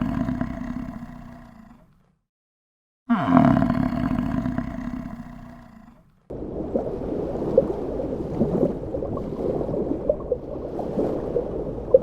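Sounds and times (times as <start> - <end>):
large animal roaring: 0.0 - 2.0, 3.1 - 6.1.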